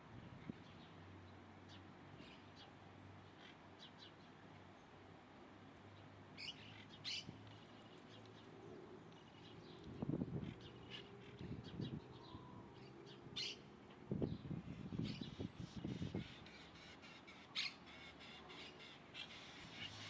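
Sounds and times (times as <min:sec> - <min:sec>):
birds with harsh calls: 0:06.4 - 0:20.0.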